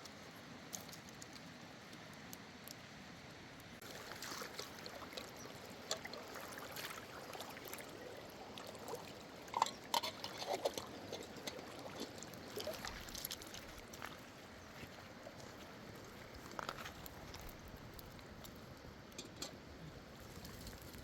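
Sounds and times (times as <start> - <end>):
sharp water splashes: 3.8 - 13.8
water trickling and splashing: 3.8 - 21.0.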